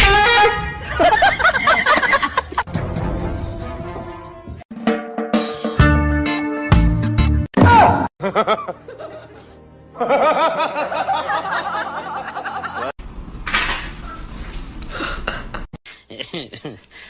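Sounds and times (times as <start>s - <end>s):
background music: 0.0s - 12.9s
people laughing: 0.8s - 2.7s, 8.2s - 13.0s, 15.3s - 17.0s
loud cry: 7.6s - 8.1s.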